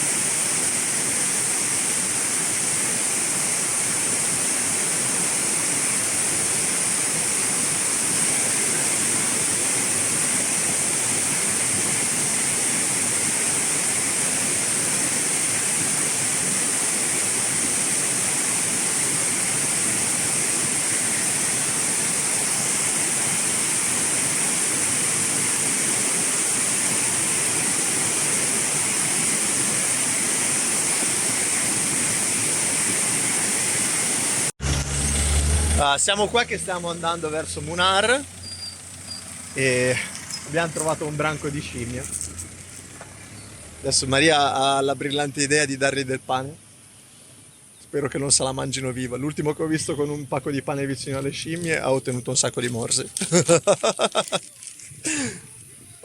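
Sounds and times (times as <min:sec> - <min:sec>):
waterfall rushing: 0:00.0 - 0:45.0, 0:51.3 - 0:56.0.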